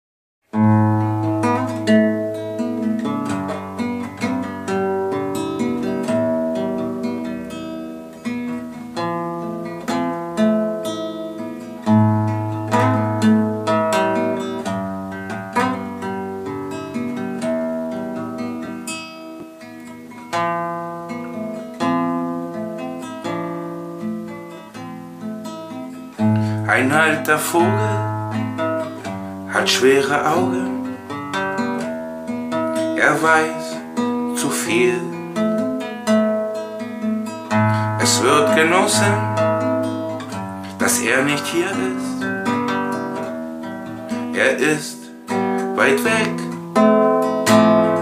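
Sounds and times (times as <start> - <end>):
acoustic guitar folk playing: 0.5 - 48.0.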